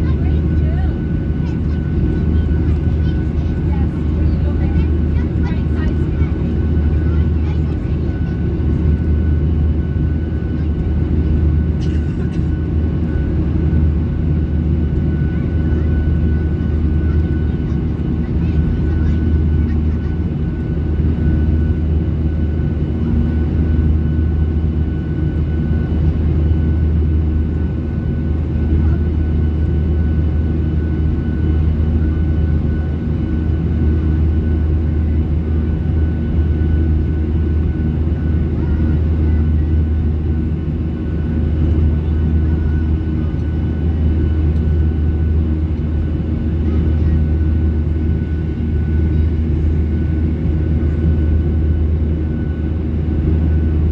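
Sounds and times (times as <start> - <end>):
airplane cabin drone: 0.0 - 53.9.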